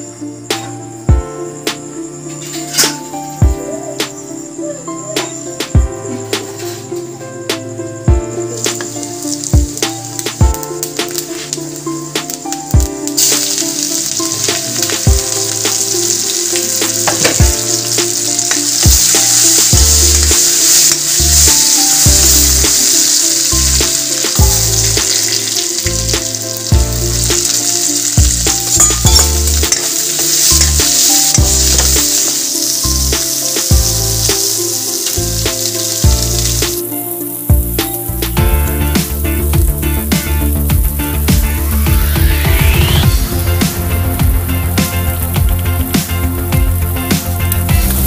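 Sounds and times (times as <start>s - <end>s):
background music with bass beat: 0.5s - 1.9s, 2.6s - 4.3s, 5.2s - 6.9s, 7.5s - 48.0s
vegetables sizzling in hot oil: 2.2s - 3.1s, 8.4s - 48.0s.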